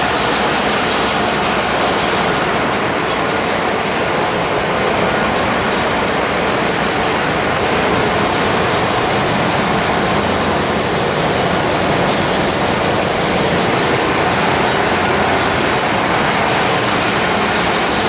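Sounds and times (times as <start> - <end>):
engine room machinery roar: 0.0 - 18.0.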